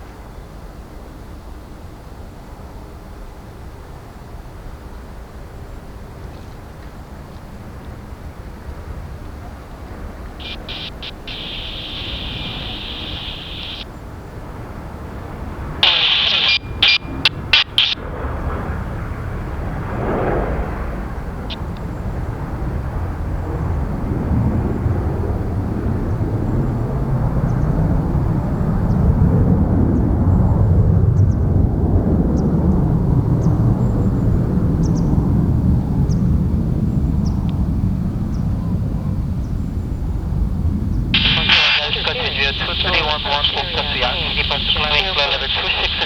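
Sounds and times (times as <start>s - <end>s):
jet engines roaring: 8.0s - 32.3s, 41.2s - 46.0s.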